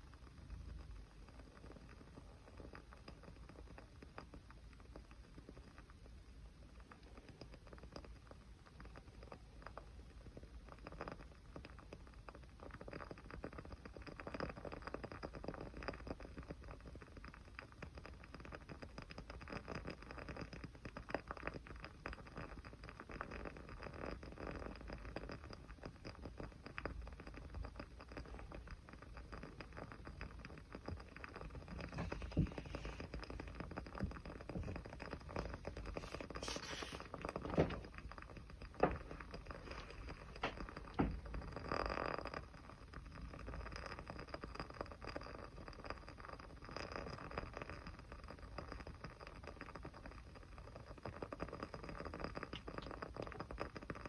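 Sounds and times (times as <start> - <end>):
small wood fire crackling: 0.0 - 54.0
fire hissing: 31.6 - 38.0.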